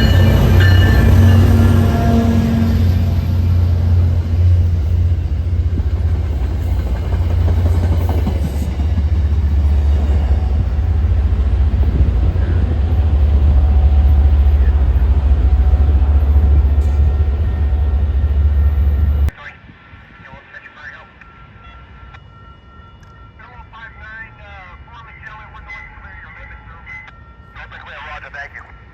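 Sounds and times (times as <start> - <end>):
wheels rumbling on rails: 0.0 - 19.3
diesel locomotive engine drone: 0.0 - 20.2.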